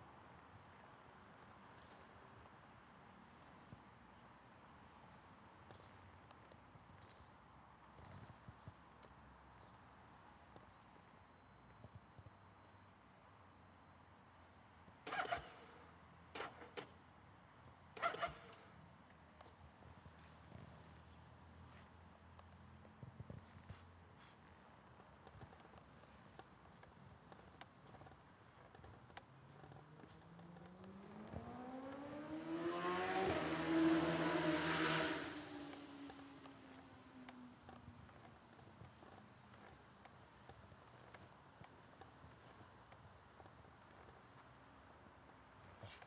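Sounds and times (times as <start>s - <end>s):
motor vehicle passing by: 30.0s - 37.2s.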